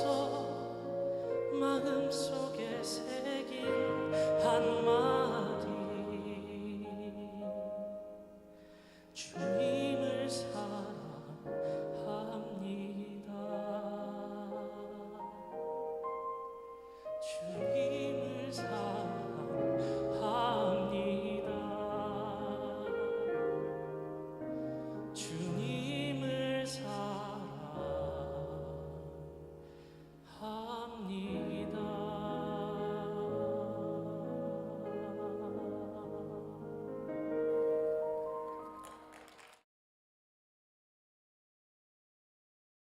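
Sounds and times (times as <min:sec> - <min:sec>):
classical solo singing with vibrato: 0:00.0 - 0:08.1, 0:09.1 - 0:15.8, 0:17.2 - 0:23.8, 0:24.5 - 0:29.3, 0:30.2 - 0:37.4
musical accompaniment: 0:31.3 - 0:39.6.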